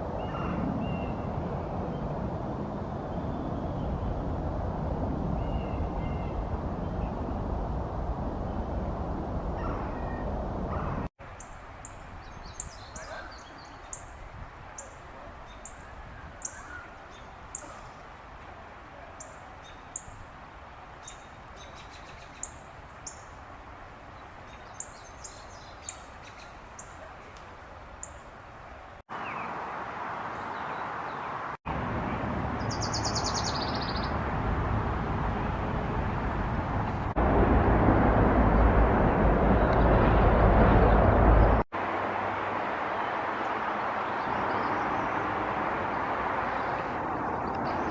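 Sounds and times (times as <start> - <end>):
high bird chirps: 11.3 - 18.2, 19.2 - 20.3, 21.0 - 23.4, 24.2 - 27.4.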